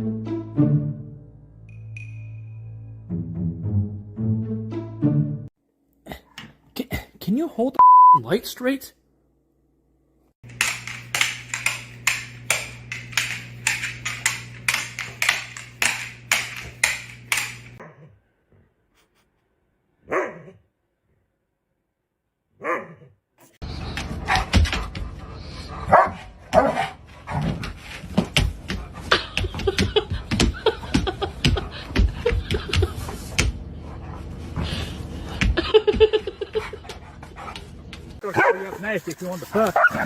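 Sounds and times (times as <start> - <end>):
dog barking: 20.0 - 20.6, 22.6 - 23.1, 25.9 - 27.0, 38.2 - 38.8, 39.6 - 40.0
dog yelping: 20.1 - 20.6, 22.6 - 23.1, 39.8 - 40.0.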